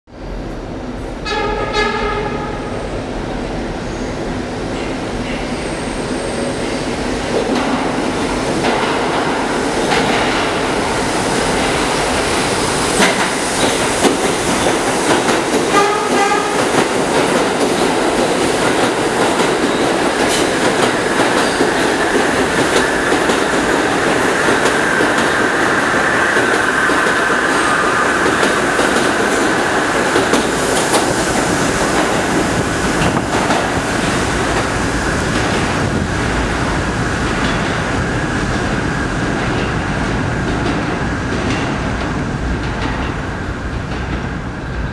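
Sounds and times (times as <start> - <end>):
train wheels rumbling on rail: 0.1 - 44.9.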